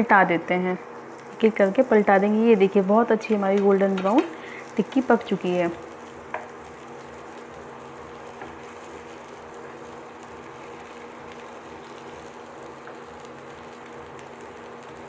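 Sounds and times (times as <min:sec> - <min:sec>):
food sizzling in a pan: 0:00.0 - 0:15.0
low steady hum: 0:00.0 - 0:15.0.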